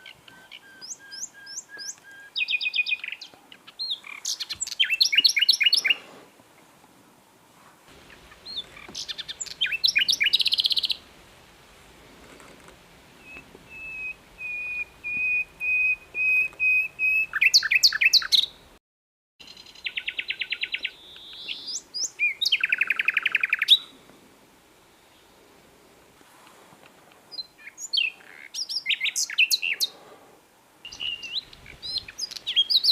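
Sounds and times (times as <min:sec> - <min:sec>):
nightingale singing: 0:00.0 - 0:06.0, 0:07.9 - 0:11.1, 0:13.1 - 0:18.7, 0:19.4 - 0:24.0, 0:27.3 - 0:30.0, 0:30.8 - 0:32.9.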